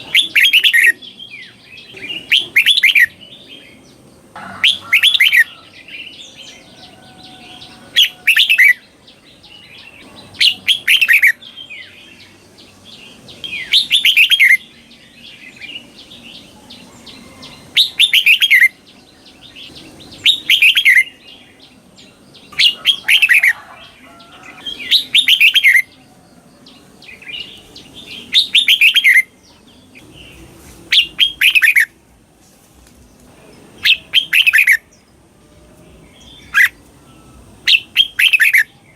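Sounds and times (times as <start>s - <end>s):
bulbul singing falling phrases: 0.0s - 38.9s.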